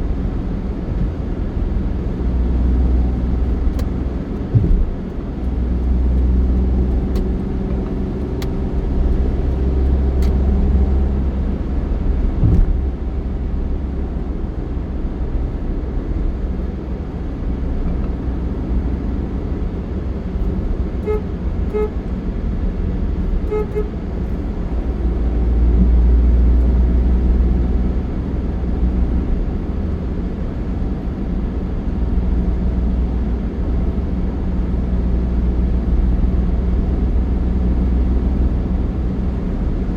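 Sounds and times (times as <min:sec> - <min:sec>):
road noise: 0:00.0 - 0:39.9
vehicle engine rumble: 0:00.0 - 0:39.9
short horn toots: 0:04.5 - 0:05.1, 0:12.4 - 0:12.9, 0:21.0 - 0:22.0, 0:23.5 - 0:23.9.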